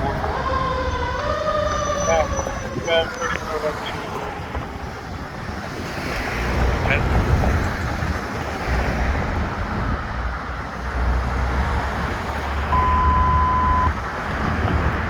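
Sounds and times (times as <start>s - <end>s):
vehicle and road rumble: 0.0s - 15.0s
radio alert beep: 12.7s - 14.0s.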